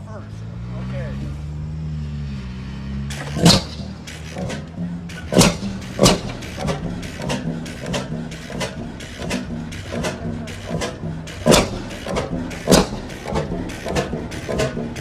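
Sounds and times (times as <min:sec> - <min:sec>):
engine turning over with light clicks: 0:03.0 - 0:15.0
engine firing pop: 0:03.1 - 0:15.0.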